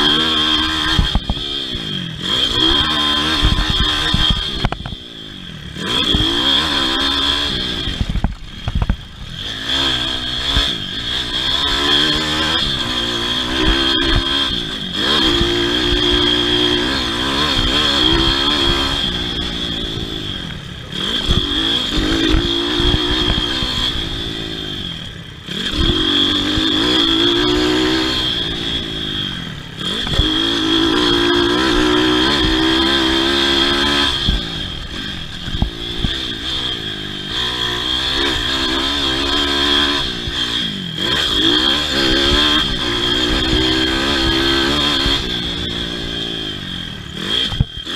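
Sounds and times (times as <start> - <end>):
pit bike engine revving: 0.0 - 47.9.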